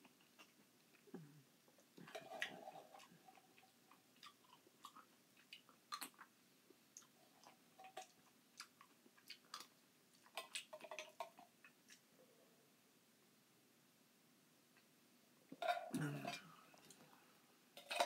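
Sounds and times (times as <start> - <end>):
wet chewing and mouth smacks: 2.0 - 6.3, 6.9 - 12.1.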